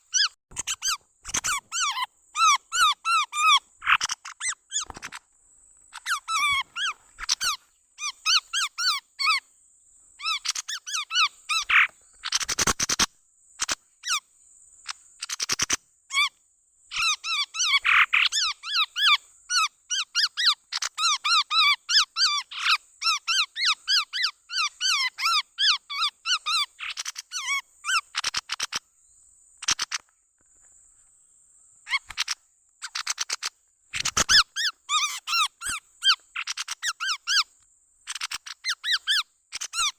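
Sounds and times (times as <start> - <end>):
birds chirping squeakily: 0.0 - 5.3, 5.9 - 9.4, 10.2 - 14.2, 14.9 - 28.8, 29.6 - 30.0, 31.8 - 39.9.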